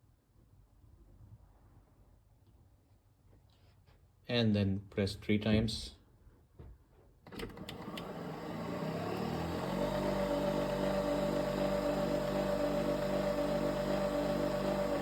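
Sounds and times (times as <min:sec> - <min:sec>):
coffee machine pump whirring: 0:07.3 - 0:15.0.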